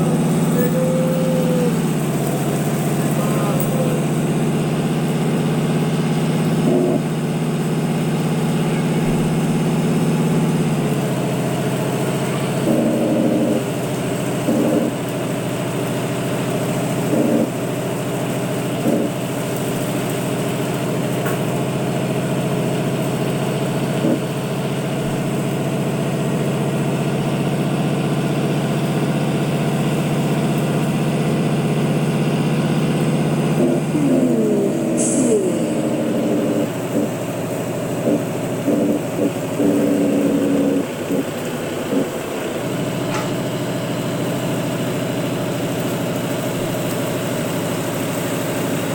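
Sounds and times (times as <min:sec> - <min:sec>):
heavy truck engine running: 0:00.0 - 0:48.9
air hiss: 0:34.1 - 0:37.1.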